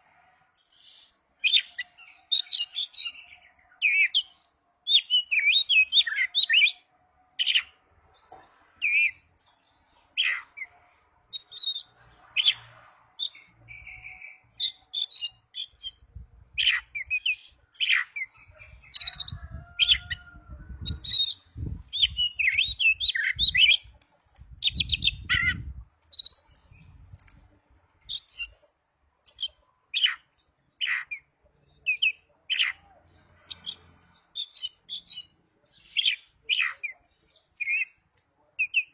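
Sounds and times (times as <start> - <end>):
songbird whistling and chattering: 1.4 - 3.2, 4.9 - 6.8, 13.2 - 16.0, 16.6 - 20.2, 20.8 - 23.9, 24.6 - 26.4, 28.1 - 28.6, 30.8 - 32.8, 33.4 - 33.8, 34.4 - 37.0, 37.6 - 38.0.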